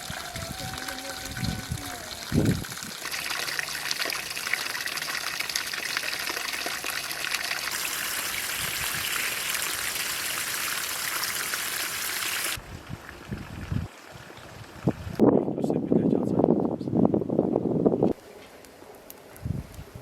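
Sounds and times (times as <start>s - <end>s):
water running with hissing splash: 0.0s - 12.6s.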